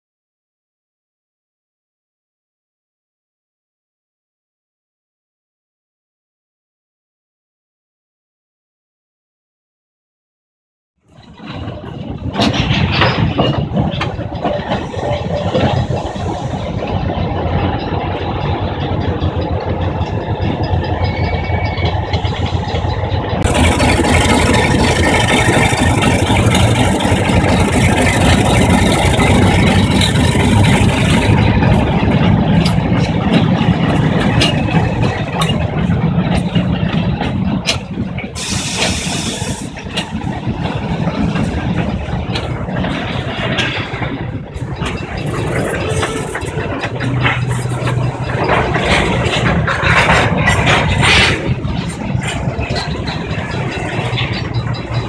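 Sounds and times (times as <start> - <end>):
diesel locomotive engines running: 11.0 - 55.0.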